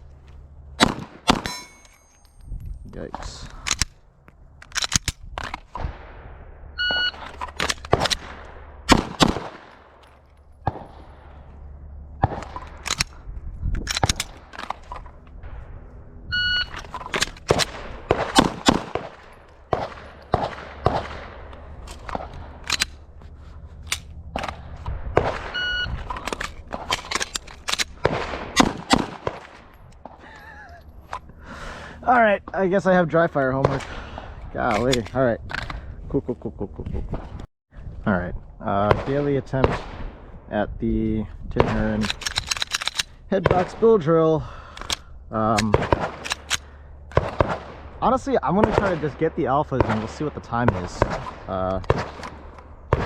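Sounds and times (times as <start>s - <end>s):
pistol shots: 0.8s - 2.0s, 7.8s - 9.9s, 17.2s - 21.5s, 27.9s - 29.7s, 45.6s - 47.9s, 49.8s - 53.0s
shot timer beep: 6.8s - 7.2s, 16.3s - 16.7s, 25.6s - 25.9s.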